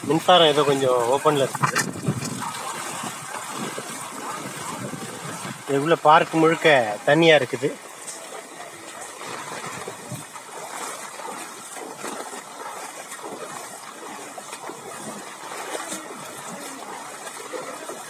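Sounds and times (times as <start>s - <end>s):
floodwater splashing and trickling: 0.0s - 18.0s.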